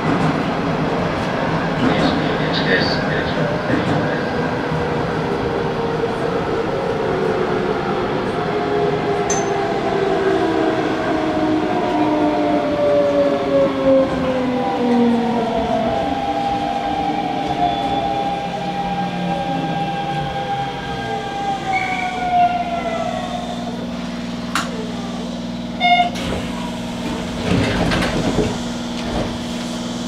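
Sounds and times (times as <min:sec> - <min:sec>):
train traction motors whining: 0:08.9 - 0:30.0.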